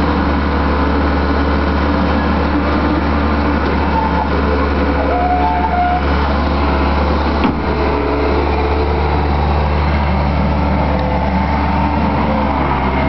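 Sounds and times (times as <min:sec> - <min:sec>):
engine running under load: 0:00.0 - 0:13.0.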